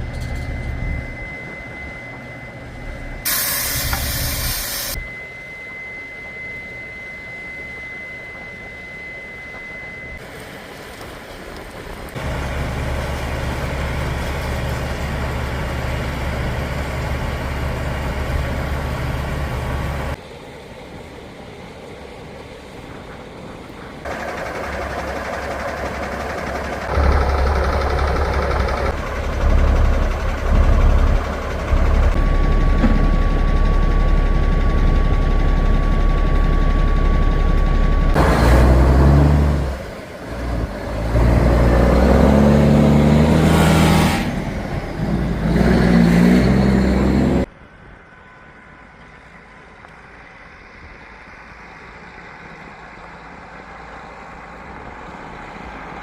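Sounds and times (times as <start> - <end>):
heavy vehicle engines running: 0.0 - 5.0, 9.5 - 56.0
steady high tone: 0.0 - 10.2, 24.1 - 38.2.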